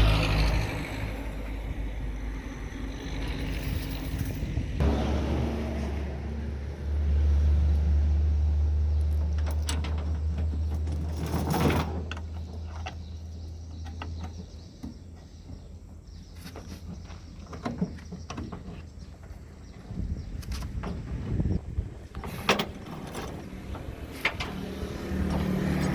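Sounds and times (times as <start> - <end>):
bulldozer diesel engine droning: 0.0 - 17.5, 21.1 - 25.9
metal clanks and knocks: 9.1 - 19.8, 20.4 - 25.9.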